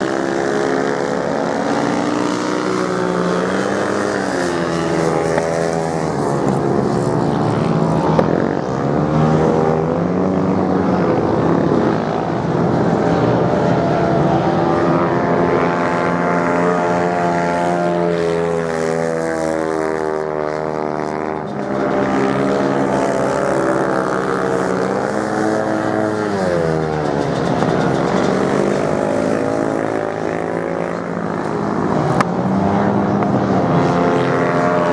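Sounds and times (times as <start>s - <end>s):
racing motorcycle engines: 0.0s - 34.9s.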